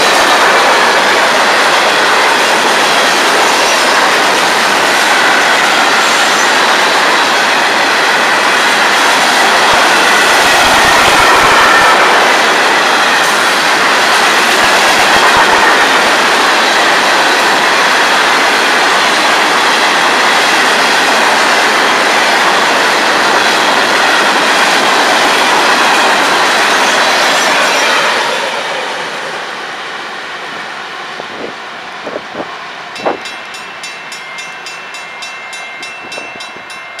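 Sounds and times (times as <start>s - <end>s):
train cars clanking: 31.3s - 37.0s.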